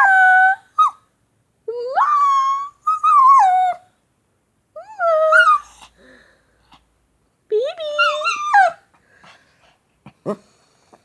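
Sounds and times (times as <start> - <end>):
puppy howling: 4.8 - 5.8.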